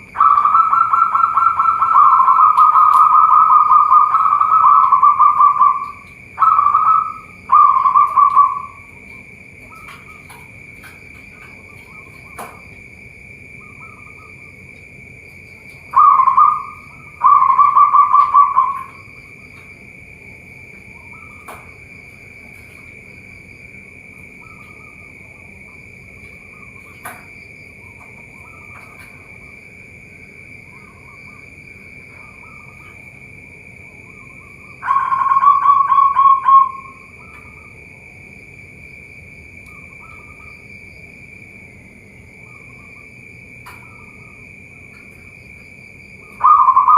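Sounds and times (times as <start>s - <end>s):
high-pitched drone: 0.0s - 9.0s, 15.9s - 19.2s, 33.9s - 37.6s, 46.2s - 46.9s
doves cooing: 0.0s - 38.2s, 46.1s - 46.9s.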